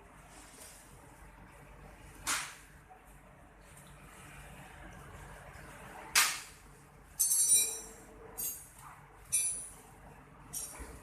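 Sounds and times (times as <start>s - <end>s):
metal clinking with short ringing: 7.2s - 8.7s, 9.3s - 9.8s.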